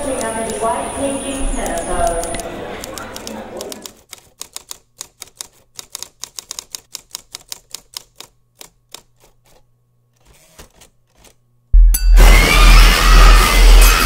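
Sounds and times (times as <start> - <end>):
sharp clicks: 1.6 - 9.3.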